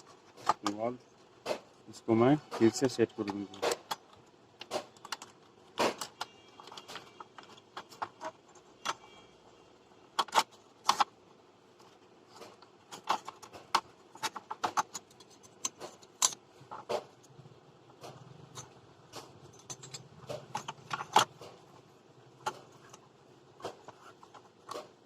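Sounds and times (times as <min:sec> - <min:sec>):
small clicks and taps of parts: 0:02.6 - 0:09.0, 0:11.8 - 0:17.3.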